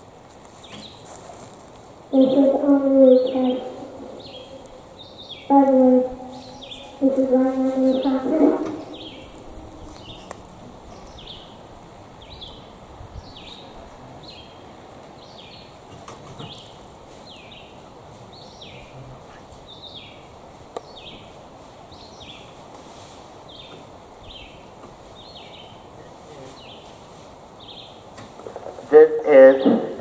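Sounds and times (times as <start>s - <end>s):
bird chirping: 2.1s - 15.8s, 16.4s - 22.5s.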